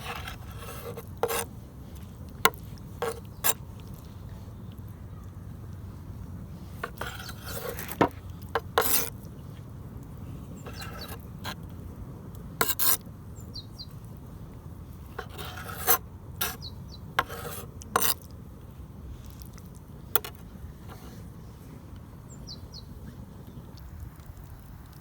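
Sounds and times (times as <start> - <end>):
utensils scraping dishes: 0.0 - 1.4, 2.5 - 3.6, 6.8 - 8.1, 8.8 - 9.1, 15.2 - 16.6, 17.2 - 18.3
low background rumble: 0.0 - 25.0.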